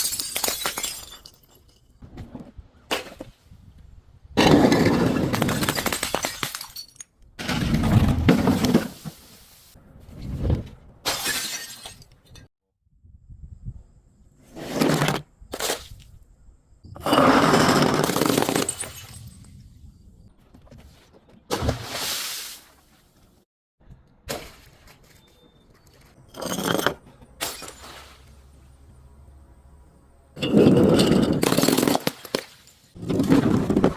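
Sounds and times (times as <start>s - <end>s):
glass bottle shattering: 0.0s - 1.9s, 5.3s - 7.1s, 11.1s - 12.1s, 17.0s - 19.5s, 26.3s - 28.3s, 30.4s - 33.0s
glass breaking: 0.0s - 1.9s, 5.4s - 7.1s, 11.1s - 12.1s, 17.9s - 19.4s, 26.4s - 28.3s.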